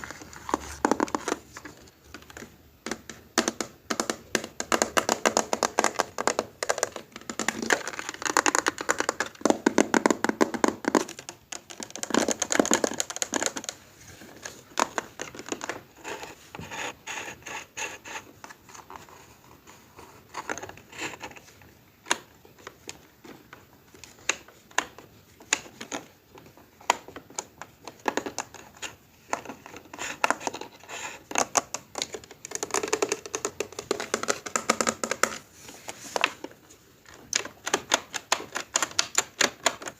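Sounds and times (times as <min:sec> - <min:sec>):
rapid small clicks and taps: 0:00.5 - 0:13.8, 0:20.4 - 0:35.4, 0:36.2 - 0:39.9.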